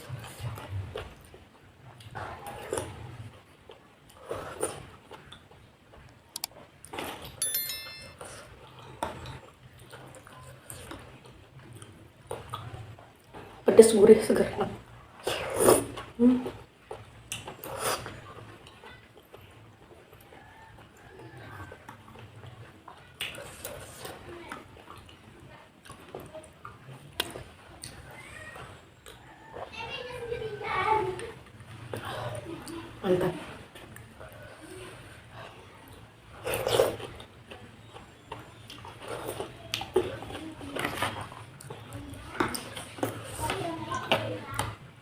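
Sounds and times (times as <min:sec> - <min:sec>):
chewing and slurping: 0:00.0 - 0:07.4, 0:15.1 - 0:44.8
short bright chime: 0:07.4 - 0:08.4.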